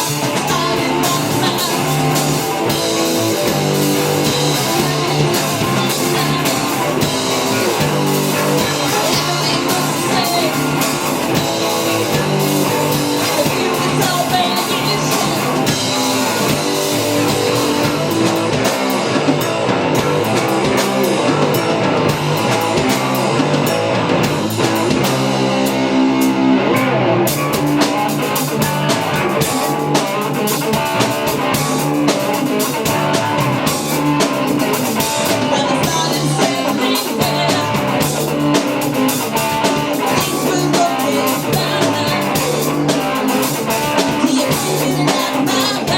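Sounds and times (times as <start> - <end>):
person singing: 0.0 - 17.9, 35.0 - 45.9
bass guitar: 0.0 - 45.9
drums and cymbals: 0.0 - 45.9
electric guitar: 0.0 - 45.9.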